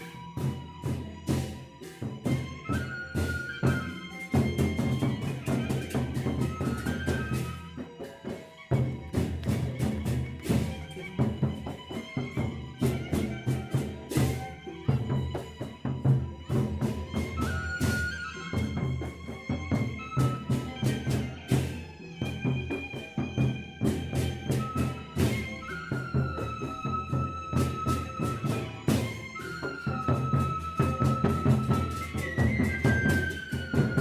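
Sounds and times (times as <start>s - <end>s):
bamboo flute melody: 0.0s - 34.0s
large drums beaten: 0.0s - 34.0s.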